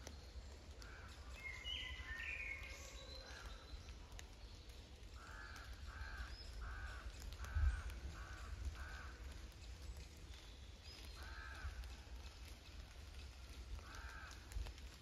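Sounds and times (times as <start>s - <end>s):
bird calls: 0.0s - 15.0s
faint rain drips: 0.0s - 15.0s.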